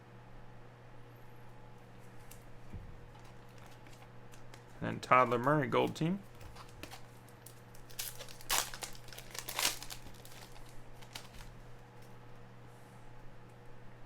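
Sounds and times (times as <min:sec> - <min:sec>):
foil wrapper crinkling and tearing: 0:03.1 - 0:11.6.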